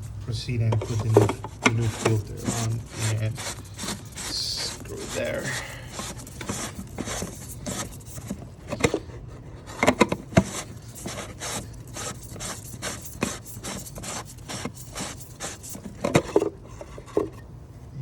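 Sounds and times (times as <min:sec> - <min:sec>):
filter cap scraping on housing: 0:00.5 - 0:17.4.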